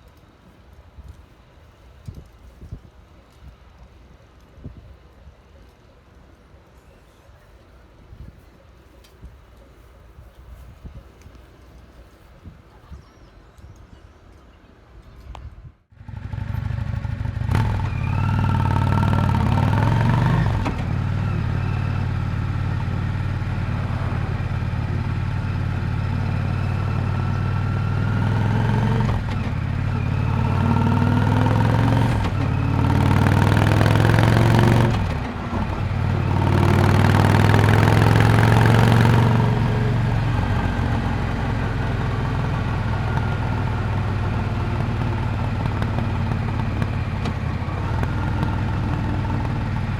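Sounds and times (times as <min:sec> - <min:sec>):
motorcycle engine exhaust: 0:15.9 - 0:49.9.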